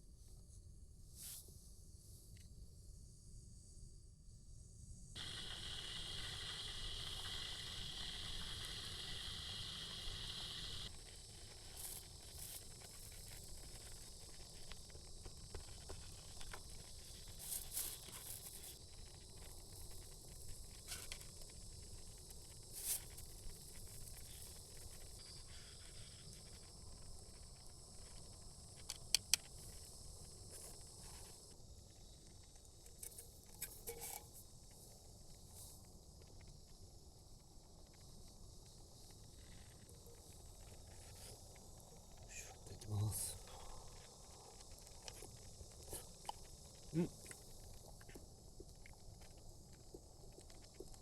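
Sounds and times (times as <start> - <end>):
gas stove burner hissing: 5.2 - 31.5
light crackles and ticks: 10.9 - 51.0.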